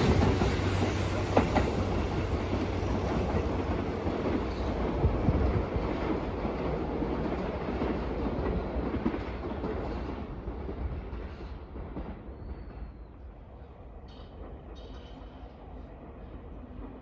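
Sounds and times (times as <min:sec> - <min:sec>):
electric train running: 0:00.0 - 0:04.8.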